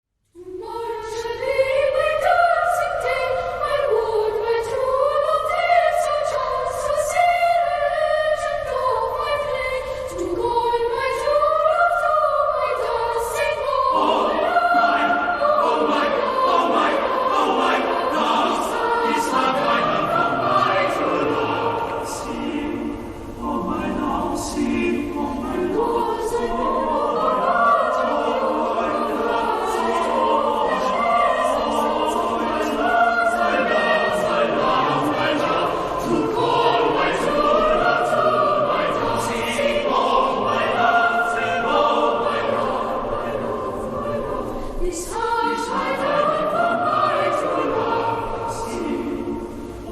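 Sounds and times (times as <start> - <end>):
choir singing: 0.3 - 49.9.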